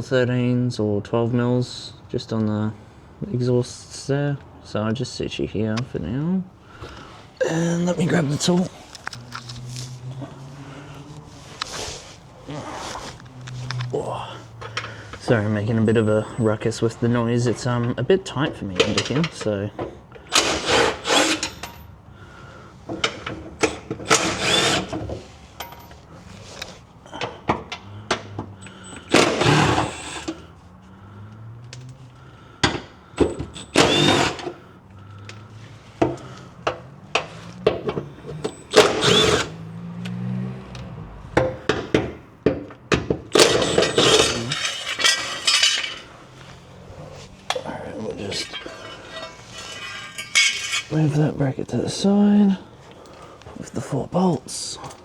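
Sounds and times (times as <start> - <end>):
hand ratchet clicking: 20.3 - 21.8, 23.0 - 25.8, 33.2 - 34.6, 36.0 - 39.6, 43.3 - 46.0
metal knocks: 48.3 - 50.9.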